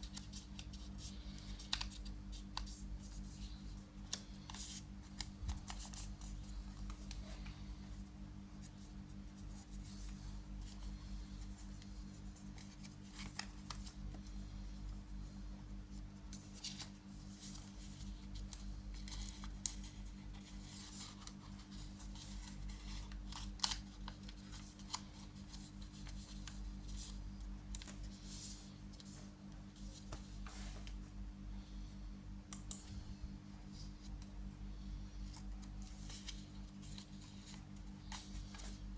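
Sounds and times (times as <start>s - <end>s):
paper rustling and crinkling: 0.0s - 7.6s, 9.4s - 14.4s, 16.0s - 31.1s, 35.2s - 38.9s
low electrical hum: 0.0s - 38.9s
paper crackle: 11.6s - 14.1s, 16.3s - 29.1s.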